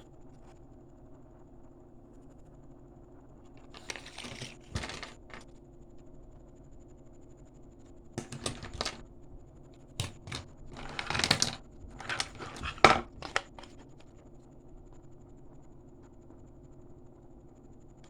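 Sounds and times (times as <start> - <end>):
plastic packaging crinkling: 3.6 - 5.4, 12.0 - 13.7.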